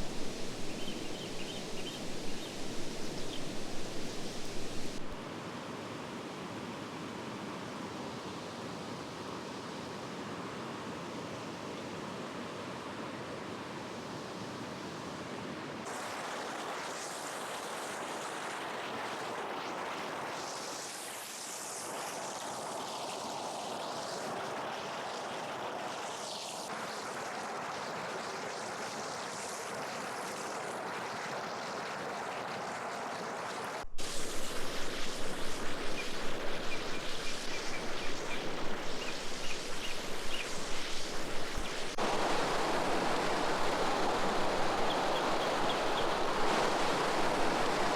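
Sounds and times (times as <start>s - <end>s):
river water rushing: 0.0s - 7.4s, 30.6s - 47.9s.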